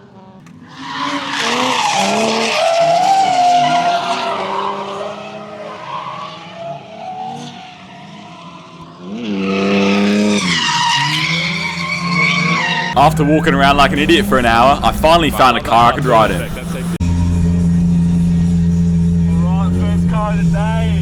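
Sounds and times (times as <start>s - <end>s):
car engine revving: 0.0s - 21.0s
tyres squealing: 0.4s - 6.4s, 9.4s - 17.0s.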